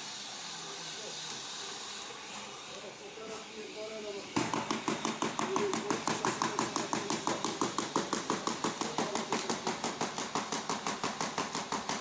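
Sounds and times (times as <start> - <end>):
wood slat machine clacking: 4.4 - 12.0.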